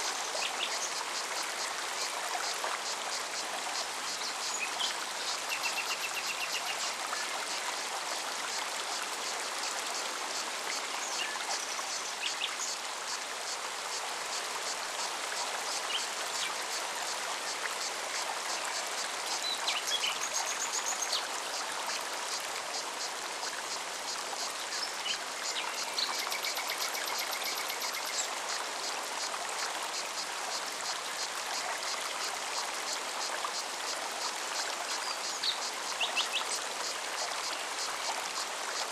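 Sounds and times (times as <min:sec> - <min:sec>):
stream running over rocks: 0:00.0 - 0:38.9.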